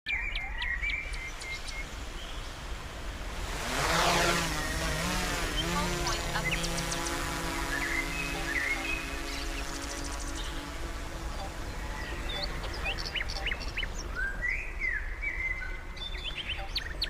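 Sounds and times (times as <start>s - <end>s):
birds chirping: 0.1s - 17.0s
drone propeller hum: 1.1s - 14.6s.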